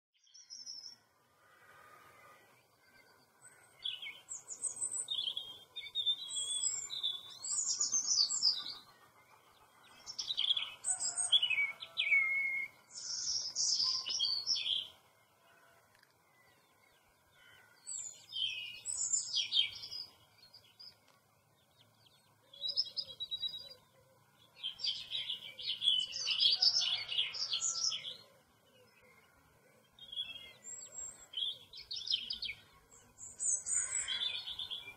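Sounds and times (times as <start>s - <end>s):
songbirds chirping: 0.2s - 34.9s.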